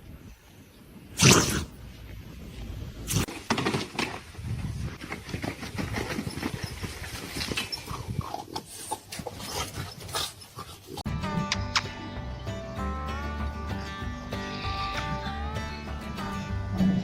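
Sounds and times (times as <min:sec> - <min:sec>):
knocks and rustles: 0:03.2 - 0:10.2.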